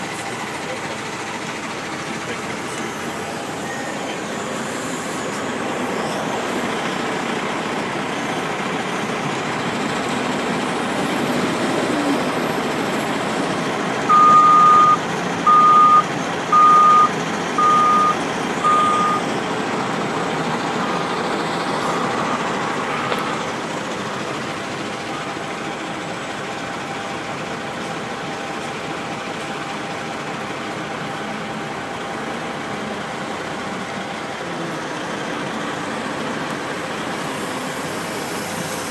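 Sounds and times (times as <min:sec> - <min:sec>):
reversing alarm beeping: 0:00.0 - 0:10.4, 0:14.0 - 0:19.5, 0:21.0 - 0:23.4
heavy truck engine running: 0:00.0 - 0:38.9.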